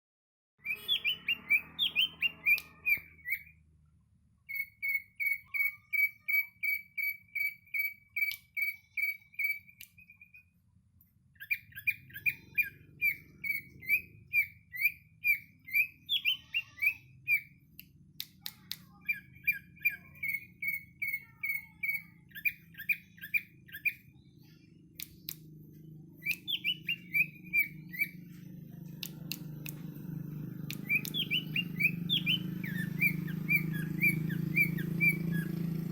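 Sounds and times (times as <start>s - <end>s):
bird chirping: 0.6s - 35.9s
low hum: 22.3s - 35.9s.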